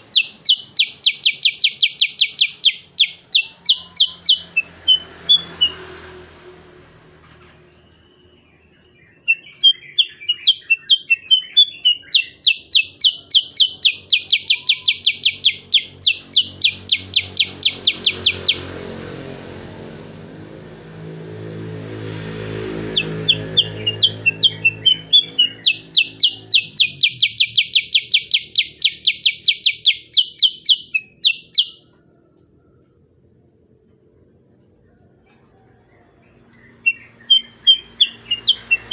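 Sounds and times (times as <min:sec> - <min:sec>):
bulbul singing rapid high notes: 0:00.0 - 0:05.8, 0:09.2 - 0:18.8, 0:22.8 - 0:31.8, 0:36.8 - 0:38.9.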